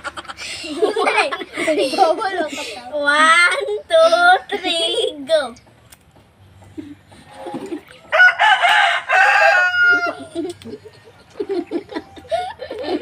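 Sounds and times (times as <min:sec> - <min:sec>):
rooster crowing: 0:08.1 - 0:10.3.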